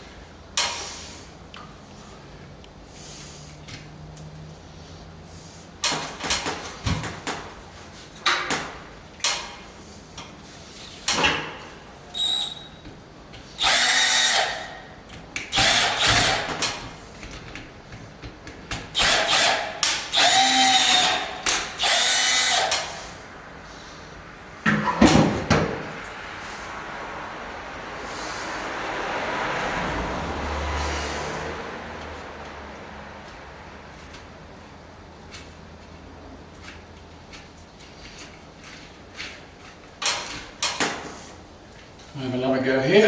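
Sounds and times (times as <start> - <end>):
power drill whirring: 13.6 - 14.8, 15.5 - 16.8, 19.0 - 23.1.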